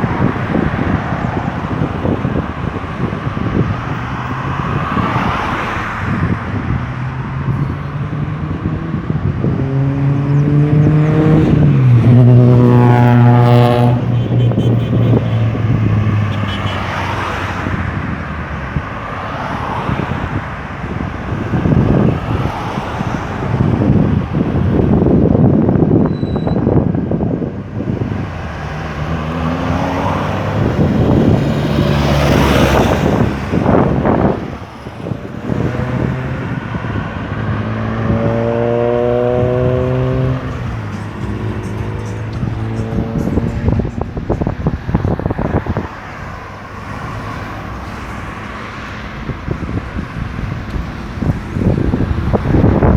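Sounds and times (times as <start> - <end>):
highway traffic: 0.0 - 52.9
vehicle engine passing close: 6.0 - 14.2, 27.9 - 52.9.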